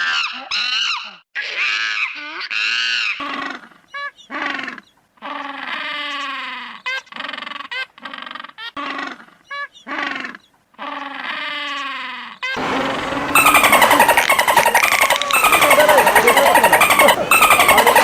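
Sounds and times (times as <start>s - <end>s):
lower falling animal calls: 12.6s - 18.0s
short high wavering animal calls: 12.6s - 18.0s.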